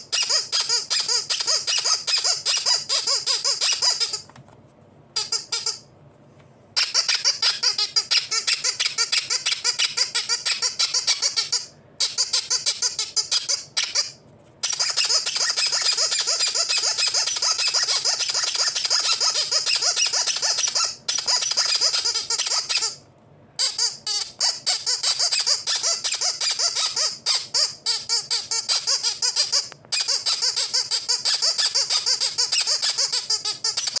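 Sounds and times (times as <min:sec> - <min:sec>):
rapid high-pitched squeaks: 0:06.8 - 0:23.0, 0:23.6 - 0:34.0.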